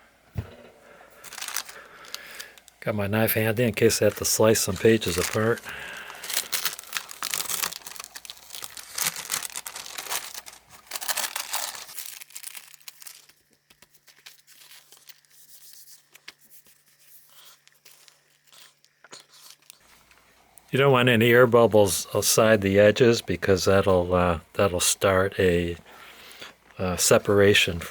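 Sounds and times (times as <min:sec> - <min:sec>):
glued paper crackling and tearing: 0:01.2 - 0:20.0.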